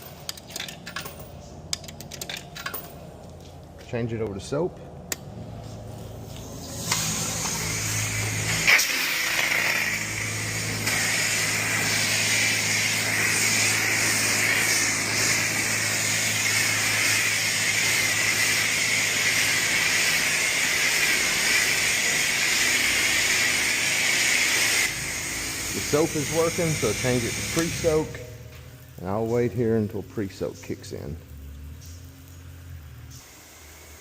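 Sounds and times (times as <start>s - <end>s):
pressure washer spray hissing: 5.6s - 34.0s.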